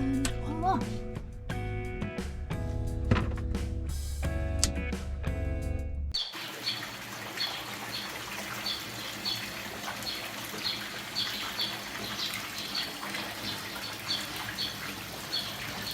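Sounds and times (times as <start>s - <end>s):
bird chirping: 6.2s - 15.9s.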